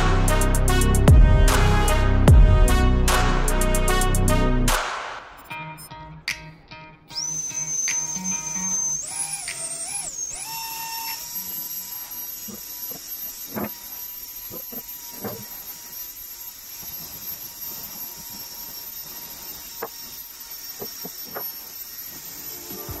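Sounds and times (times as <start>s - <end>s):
motor high-pitched whine: 7.1s - 23.0s.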